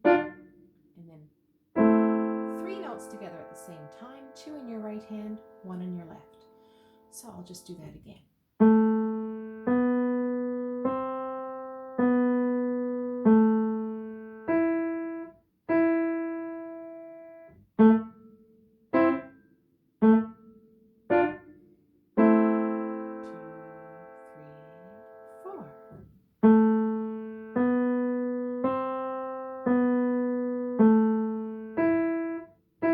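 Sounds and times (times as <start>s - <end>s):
slow piano melody: 0.0s - 1.1s, 1.7s - 7.3s, 8.6s - 32.9s
piano chord ringing: 1.8s - 7.5s, 22.2s - 32.9s.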